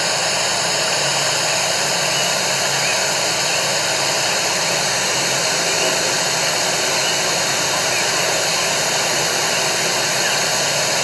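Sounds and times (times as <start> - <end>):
faint steady whines: 0.0 - 11.0
steady rushing noise: 3.3 - 11.0.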